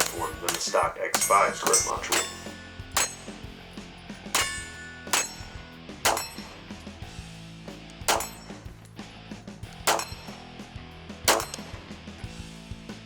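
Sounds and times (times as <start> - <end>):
steel target clanging: 0.0 - 7.2, 8.0 - 9.0, 9.7 - 10.6, 11.3 - 11.9
pistol shots: 0.0 - 7.3, 7.9 - 9.0, 9.6 - 12.2
background music: 0.0 - 13.0.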